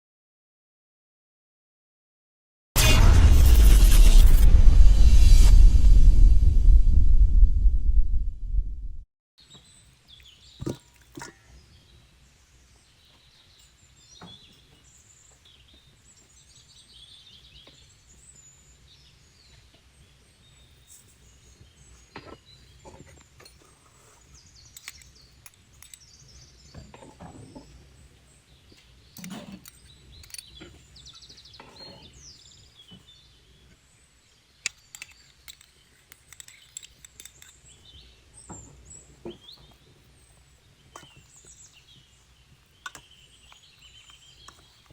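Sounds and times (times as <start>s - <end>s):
steady low hum: 2.8s - 9.0s.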